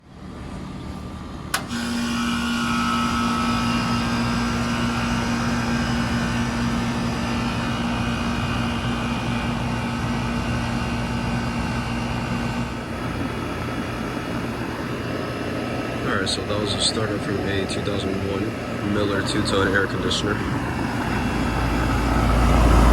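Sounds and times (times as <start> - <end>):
air conditioner compressor humming: 0.0 - 22.9
air conditioner switch click: 1.5 - 2.0.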